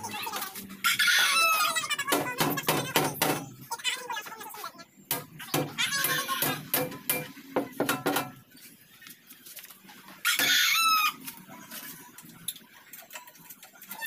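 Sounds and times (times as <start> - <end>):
rooster crowing: 0.8 - 1.8, 10.2 - 11.2.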